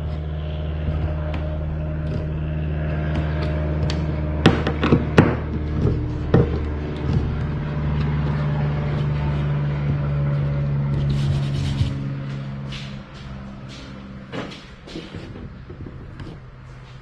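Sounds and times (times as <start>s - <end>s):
steady low hum: 0.0s - 17.0s
hardware knocks and clicks: 0.8s - 11.2s, 13.8s - 17.0s.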